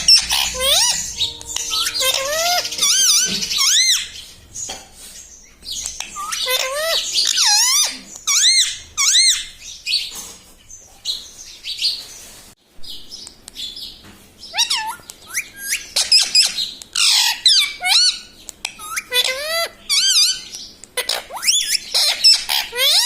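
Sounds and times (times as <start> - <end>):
parakeet whistled notes and squawks: 0.0 - 4.8, 5.7 - 9.7, 14.5 - 23.0.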